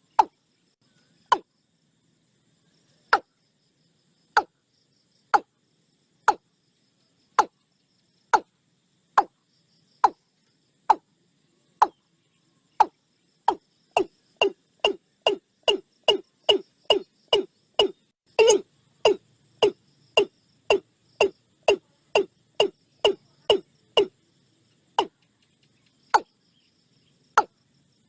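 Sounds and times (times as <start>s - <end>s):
faint insect chirring: 0.0s - 28.0s.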